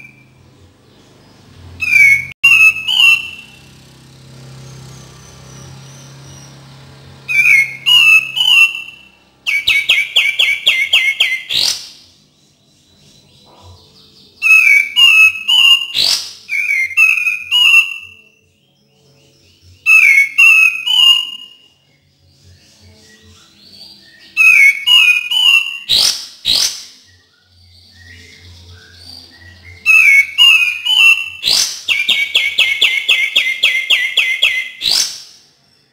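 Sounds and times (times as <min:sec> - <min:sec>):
bird whistling song: 0:00.0 - 0:03.9, 0:04.6 - 0:35.9
sharp upward-sweeping bird notes: 0:01.8 - 0:04.0, 0:04.6 - 0:12.2, 0:14.3 - 0:18.7, 0:19.8 - 0:21.9, 0:23.2 - 0:35.8.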